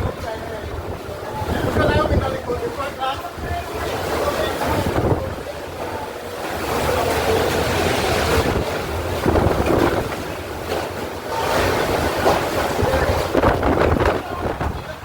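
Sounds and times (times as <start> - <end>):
strong wind gusting: 0.0 - 5.5, 7.6 - 10.6, 11.3 - 15.0
wind buffeting microphone: 0.0 - 5.6, 7.4 - 15.0.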